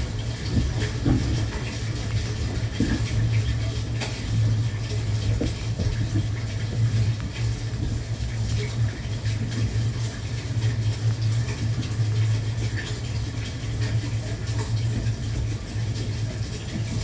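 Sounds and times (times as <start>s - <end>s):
train cabin rumble: 0.0s - 8.7s.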